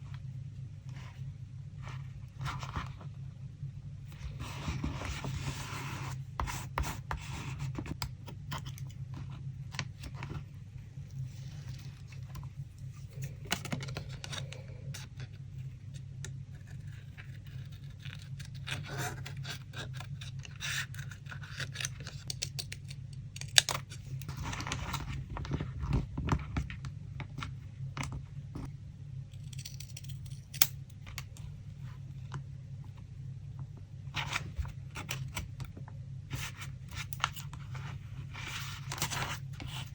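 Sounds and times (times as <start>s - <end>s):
steady low hum: 0.0s - 39.9s
paper rustling and scraping: 4.1s - 8.0s, 24.3s - 26.7s, 36.3s - 39.9s.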